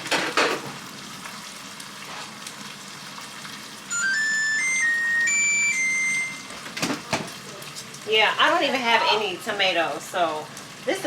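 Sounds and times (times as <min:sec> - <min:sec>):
faint frying sizzle: 0:00.0 - 0:11.0
appliance chime beeping tune: 0:03.9 - 0:06.7.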